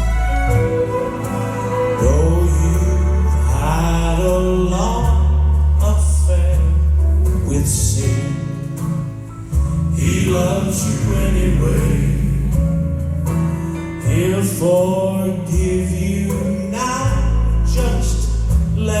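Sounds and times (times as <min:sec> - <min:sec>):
male quartet singing in harmony: 0:00.0 - 0:06.6, 0:09.9 - 0:13.0, 0:14.0 - 0:19.0
backing music with bass notes: 0:00.0 - 0:19.0.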